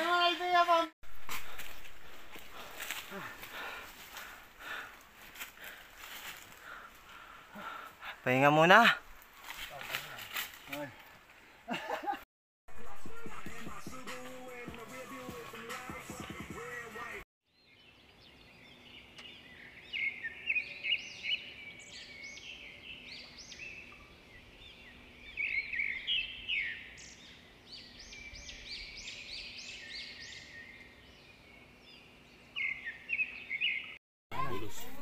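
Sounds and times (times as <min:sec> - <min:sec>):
wild birds singing: 0:13.6 - 0:34.0.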